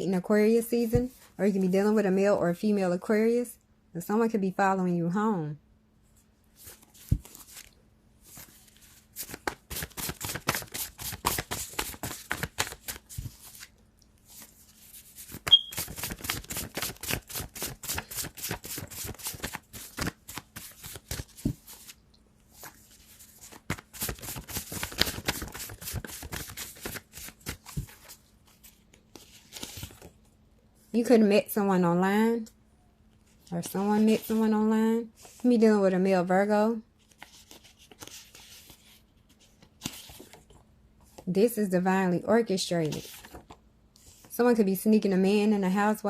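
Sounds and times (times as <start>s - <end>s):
cards being shuffled: 6.6s - 22.0s, 22.6s - 30.1s, 37.0s - 40.6s.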